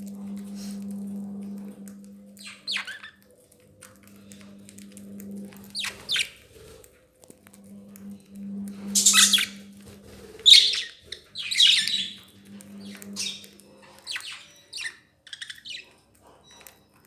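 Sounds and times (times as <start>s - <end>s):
steady low hum: 0.0s - 14.2s
budgerigar squawks: 10.4s - 12.2s.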